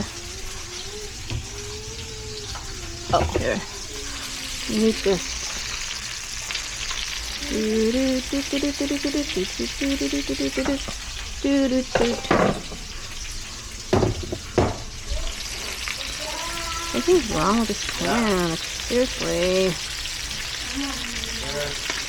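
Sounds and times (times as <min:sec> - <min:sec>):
meat sizzling in a pan: 0:00.0 - 0:22.0
person talking: 0:07.4 - 0:12.3, 0:16.9 - 0:19.8
utensil knocking against pan: 0:11.9 - 0:12.9, 0:13.9 - 0:14.9.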